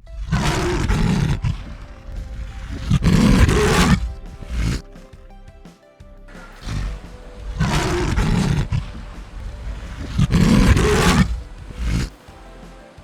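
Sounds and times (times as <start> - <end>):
big cat roaring: 0.0 - 4.9, 6.6 - 12.2
background music: 0.0 - 13.0.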